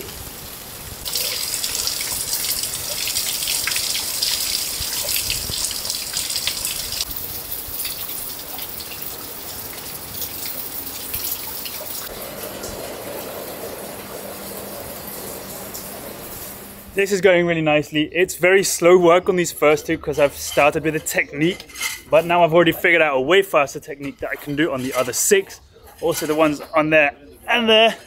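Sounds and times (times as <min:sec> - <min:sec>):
water dripping from roof edge: 0:00.0 - 0:16.9
heavy rain pouring: 0:00.0 - 0:17.2.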